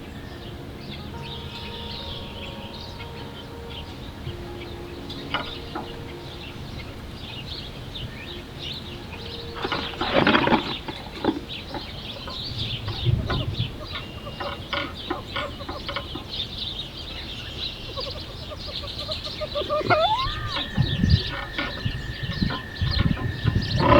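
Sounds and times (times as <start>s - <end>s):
small birds chirping: 0.0s - 23.9s.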